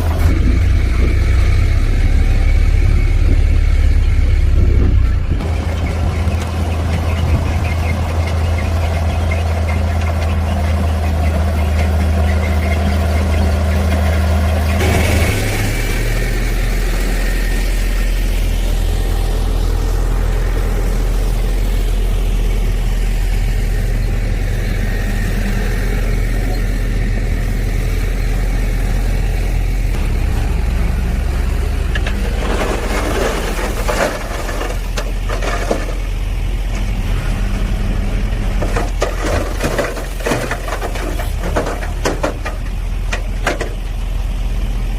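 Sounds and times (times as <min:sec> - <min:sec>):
heavy diesel engine running: 0:00.0 - 0:44.9
clattering: 0:31.9 - 0:36.2, 0:38.6 - 0:43.8.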